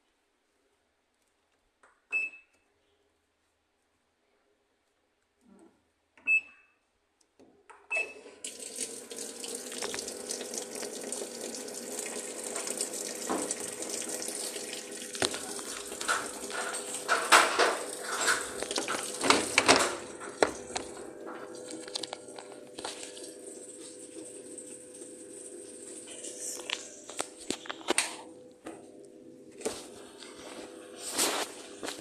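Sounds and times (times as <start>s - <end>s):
water rushing into machine: 8.5s - 20.7s.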